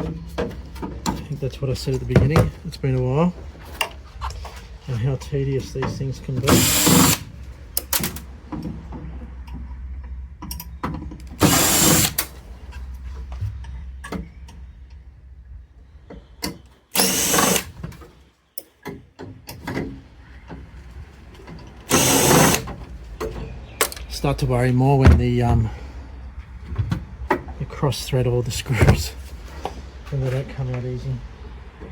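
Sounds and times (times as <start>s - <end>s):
power drill spinning screws: 6.4s - 7.2s, 11.3s - 12.3s, 17.0s - 17.7s, 21.9s - 22.7s.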